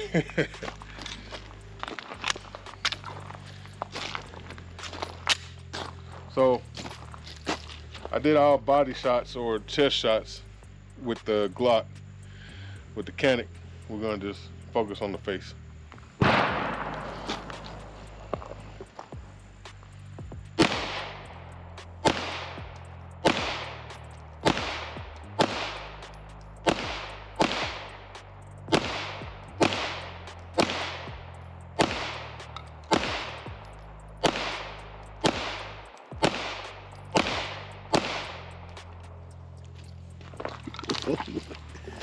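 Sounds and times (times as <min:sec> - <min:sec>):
pistol shots: 0:16.2 - 0:18.8, 0:20.6 - 0:39.2.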